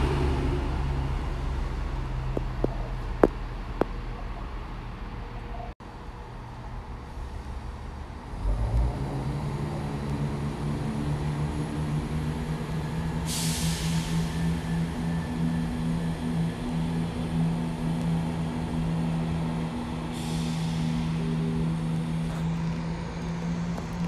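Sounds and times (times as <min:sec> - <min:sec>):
train rumble and hum: 0:00.0 - 0:24.0
air hiss: 0:13.2 - 0:14.6, 0:20.1 - 0:21.3.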